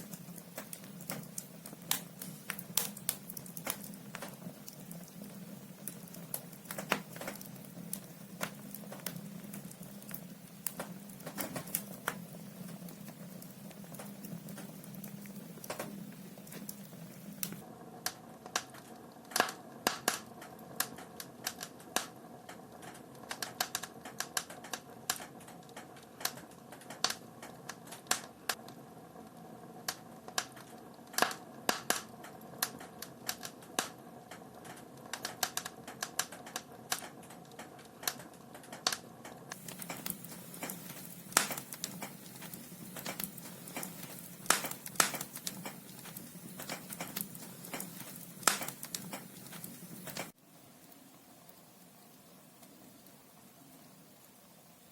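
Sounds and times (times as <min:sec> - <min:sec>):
logs crackling and popping: 0:00.0 - 0:51.2
soft steady fire hiss: 0:00.0 - 0:54.9.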